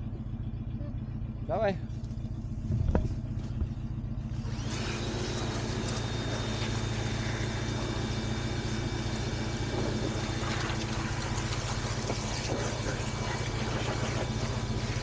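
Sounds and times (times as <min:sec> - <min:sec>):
engine idling: 0:00.0 - 0:15.0
water jet hissing: 0:09.5 - 0:15.0.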